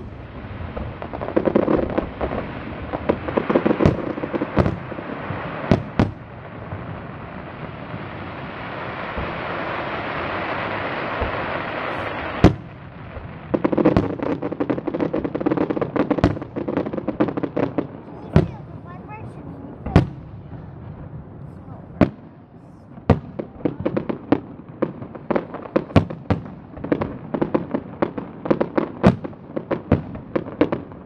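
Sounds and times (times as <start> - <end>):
firework bangs: 0.0 - 31.0
fireworks crackling and popping: 0.0 - 31.0
firework hiss: 6.8 - 13.3.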